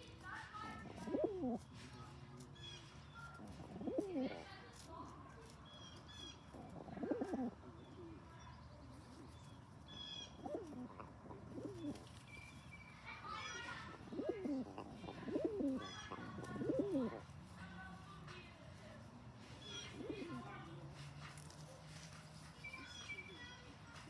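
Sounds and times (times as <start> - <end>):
pigeon cooing: 0.7 - 1.7, 3.2 - 4.4, 6.4 - 8.2, 9.9 - 12.5, 13.3 - 17.3, 19.5 - 20.5.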